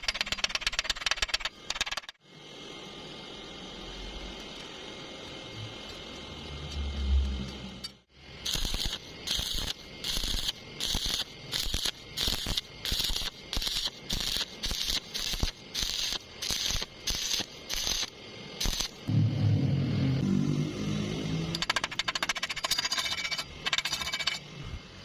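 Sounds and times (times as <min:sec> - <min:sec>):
welding arc crackling bursts: 0:08.3 - 0:19.1.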